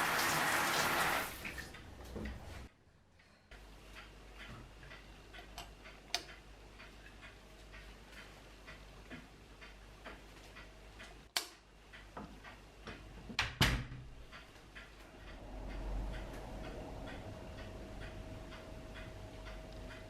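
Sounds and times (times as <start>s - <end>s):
clock ticking: 3.2s - 13.2s, 14.2s - 20.0s.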